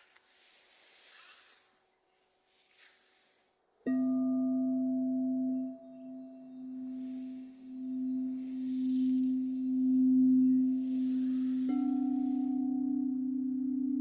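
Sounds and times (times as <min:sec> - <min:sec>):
singing bowl humming: 0:03.8 - 0:14.0.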